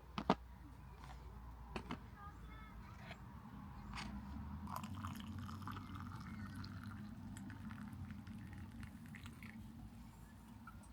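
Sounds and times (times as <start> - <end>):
liquid pouring: 4.7 - 9.6.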